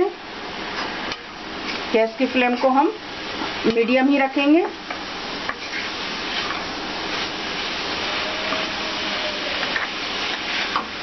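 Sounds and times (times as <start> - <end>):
meat sizzling in oil: 0.0 - 11.0
wooden spatula scraping: 5.5 - 11.0.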